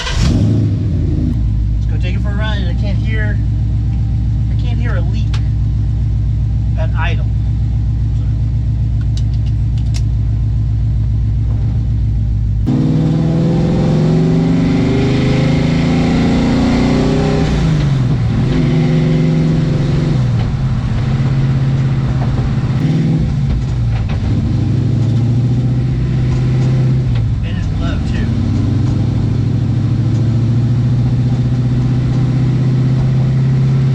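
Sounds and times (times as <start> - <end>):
car engine idling: 0.0 - 33.9
car accelerating through gears: 12.6 - 33.9.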